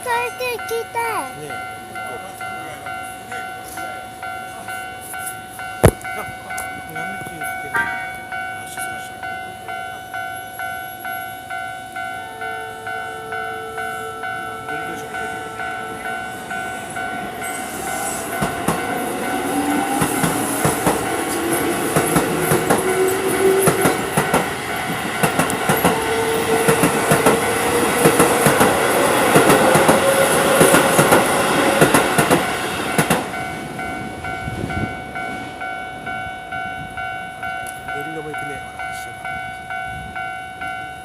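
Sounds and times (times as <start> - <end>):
level crossing warning bell: 0.0 - 41.0
train motor whine: 11.9 - 33.2
train wheels clattering over rail joints: 18.4 - 33.4.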